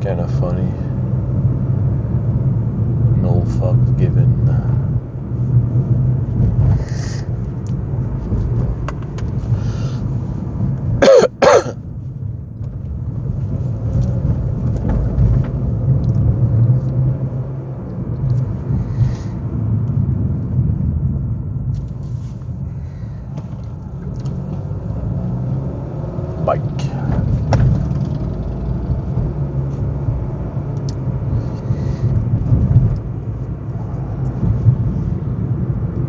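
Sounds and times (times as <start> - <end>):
car driving rumble inside cabin: 0.0 - 36.0
person coughing: 11.0 - 11.8.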